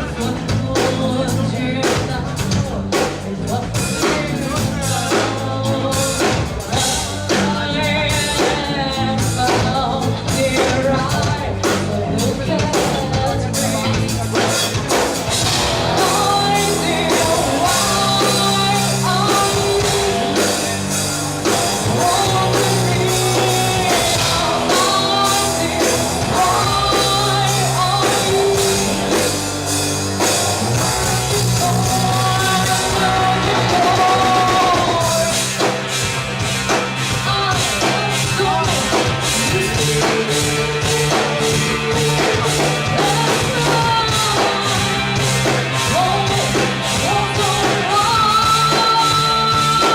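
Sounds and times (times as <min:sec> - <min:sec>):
bass notes: 0:00.0 - 0:49.9
person singing: 0:00.0 - 0:49.9
drum beat: 0:12.7 - 0:49.9.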